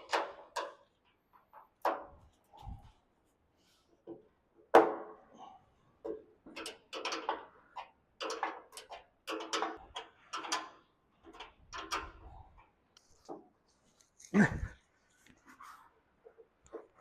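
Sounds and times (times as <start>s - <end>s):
metal bolts clinking: 6.5s - 12.3s.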